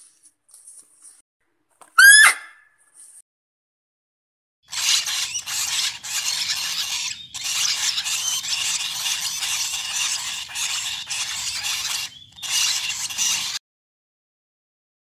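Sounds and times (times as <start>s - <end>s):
parrot chicks begging calls: 4.7s - 13.6s.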